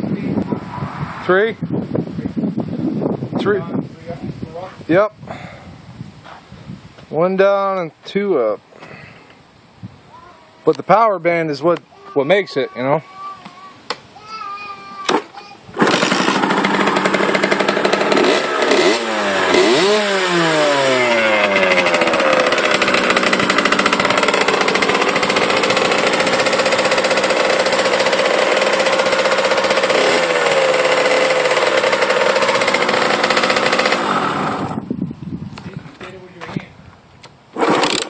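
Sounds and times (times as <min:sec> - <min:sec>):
dirt bike engine revving: 0:15.8 - 0:34.9.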